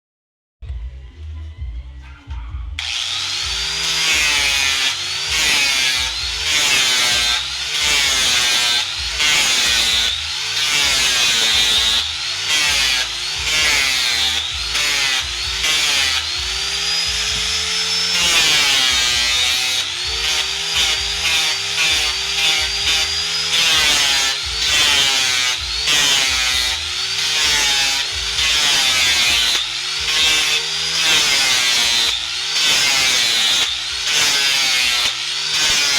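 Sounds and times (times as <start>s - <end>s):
angle grinder cutting wood: 2.8s - 35.9s.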